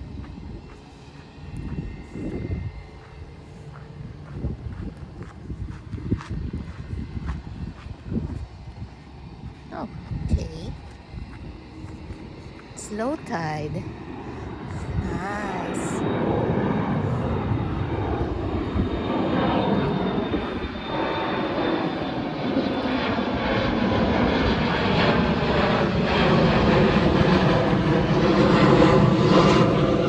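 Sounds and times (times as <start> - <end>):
airliner engines passing overhead: 0.0 - 30.0
falling engine whine: 0.0 - 30.0.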